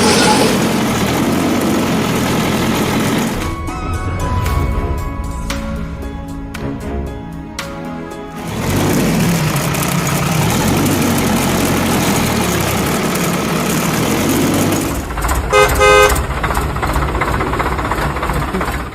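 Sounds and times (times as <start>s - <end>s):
vehicle engine rumbling: 0.0s - 18.9s
short horn toots: 15.5s - 16.2s.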